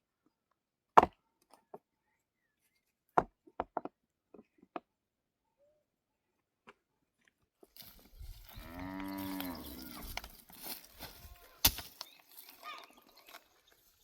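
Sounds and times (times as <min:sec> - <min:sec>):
cow mooing: 0:08.4 - 0:10.2.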